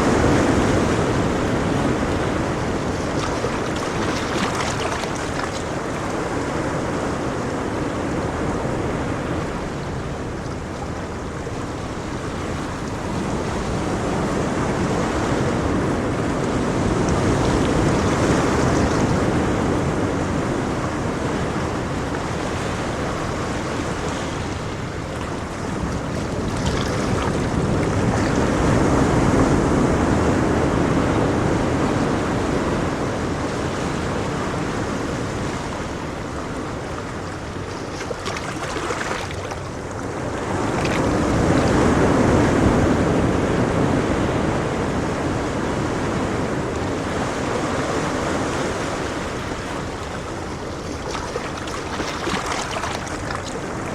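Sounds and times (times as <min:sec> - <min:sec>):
ocean waves breaking on shore: 0:00.0 - 0:53.9.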